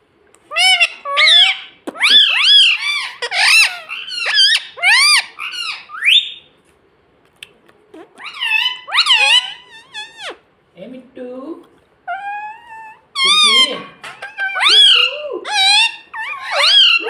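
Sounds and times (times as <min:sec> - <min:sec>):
parrot squeaky calls: 0:00.5 - 0:06.5, 0:07.9 - 0:10.5, 0:12.1 - 0:17.0.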